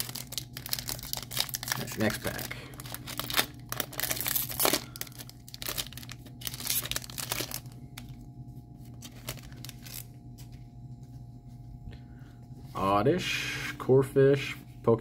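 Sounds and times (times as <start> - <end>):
foil pack tearing: 0.0 - 8.1, 8.9 - 10.1
foil wrapper crinkling: 0.0 - 10.6.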